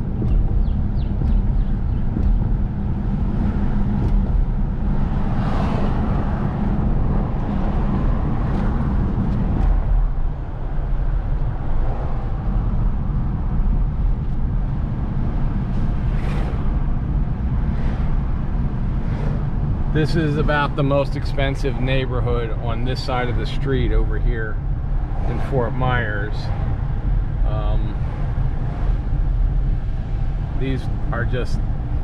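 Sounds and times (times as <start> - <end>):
car engine and road rumble: 0.0 - 32.0.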